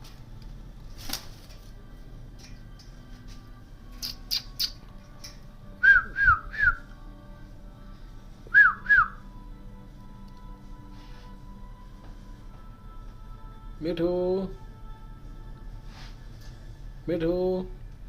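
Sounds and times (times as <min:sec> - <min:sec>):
parakeet whistling: 0:04.0 - 0:04.8.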